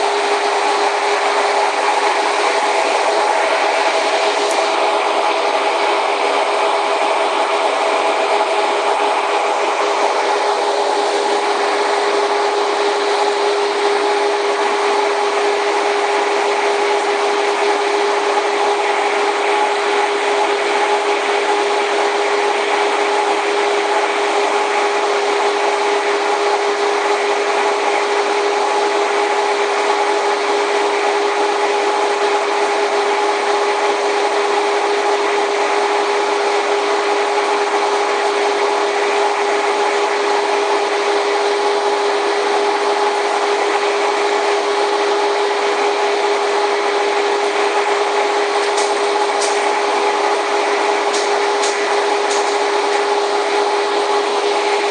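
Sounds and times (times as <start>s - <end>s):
people-mover train running: 47.4s - 54.9s
constant hum: 48.5s - 53.6s.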